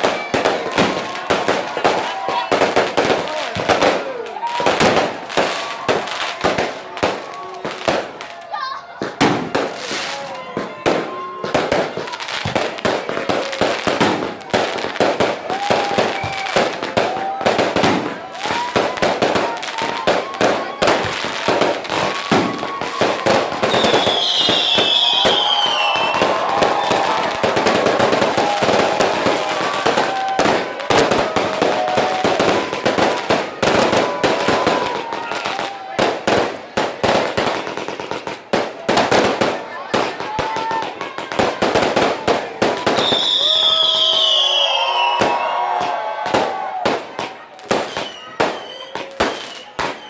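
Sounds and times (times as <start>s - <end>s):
fireworks bangs and crackles: 0.0s - 50.0s
high falling whistle: 43.0s - 45.6s.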